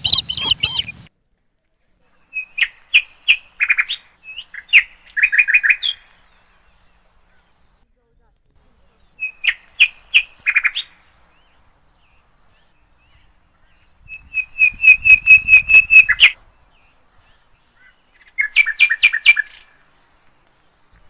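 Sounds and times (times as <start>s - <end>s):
bird calling in quick notes: 0.0s - 1.1s, 8.6s - 19.8s.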